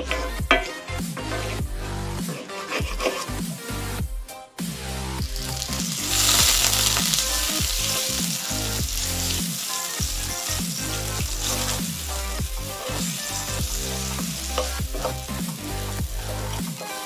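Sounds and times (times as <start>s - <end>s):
background music: 0.0s - 17.0s
wooden spoon stirring: 2.3s - 3.4s, 10.5s - 17.0s
chicken sizzling in oil: 5.2s - 17.0s.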